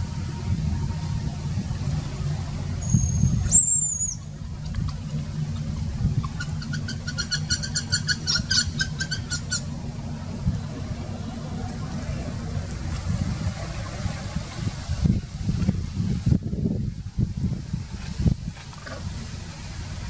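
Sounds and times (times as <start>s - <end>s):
wind rumble on microphone: 0.0s - 20.0s
high bird whistle: 2.8s - 4.3s, 6.3s - 9.8s
rapid high bird chirps: 2.8s - 4.3s, 6.2s - 9.7s.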